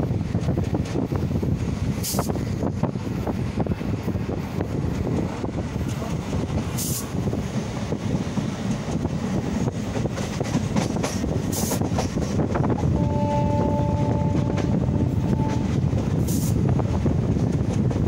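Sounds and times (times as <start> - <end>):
train rumbling and rattling: 0.0 - 18.0
train horn: 12.8 - 16.6.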